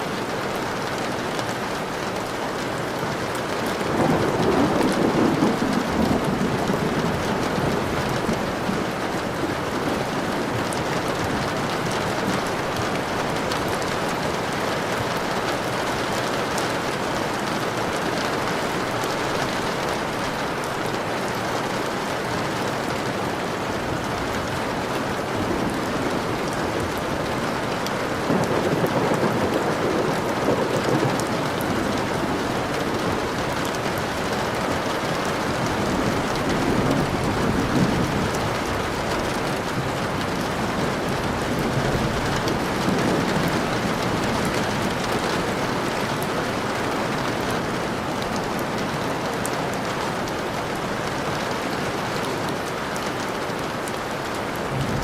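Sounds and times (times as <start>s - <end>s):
steady rain falling: 0.0s - 55.0s
low rumble of thunder: 3.7s - 16.2s, 23.9s - 46.7s, 54.5s - 55.0s.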